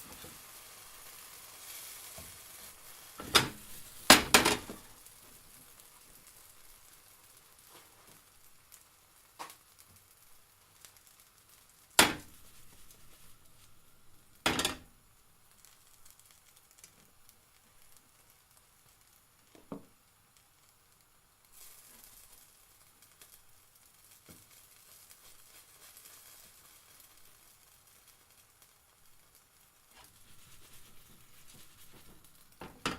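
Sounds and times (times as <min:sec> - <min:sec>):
pancake sizzling: 0:00.0 - 0:32.9
sharp knocks on frying pan: 0:03.2 - 0:04.8, 0:12.0 - 0:12.3, 0:14.4 - 0:14.8, 0:32.6 - 0:32.9.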